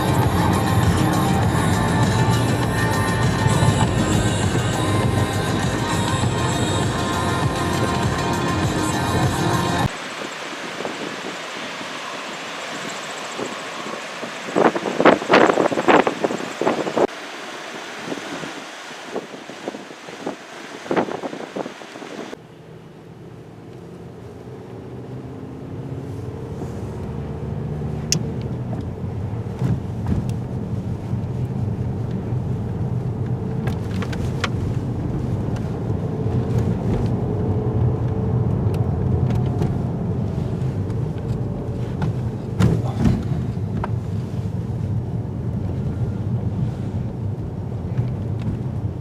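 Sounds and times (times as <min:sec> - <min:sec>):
low engine drone: 0:00.0 - 0:49.0.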